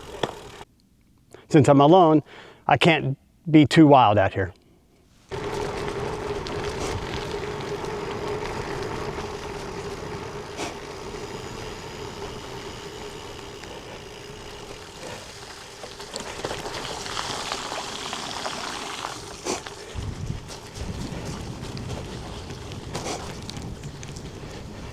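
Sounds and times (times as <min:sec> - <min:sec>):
bike tyres splashing through water: 0:05.3 - 0:23.2.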